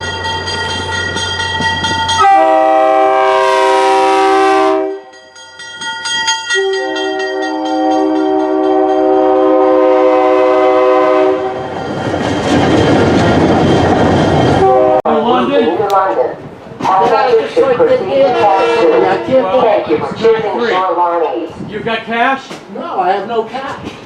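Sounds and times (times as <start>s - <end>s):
train rolling by on rails: 0.0s - 24.0s
train horn blasts: 2.2s - 5.2s, 6.6s - 11.7s, 14.6s - 15.1s, 18.2s - 19.6s.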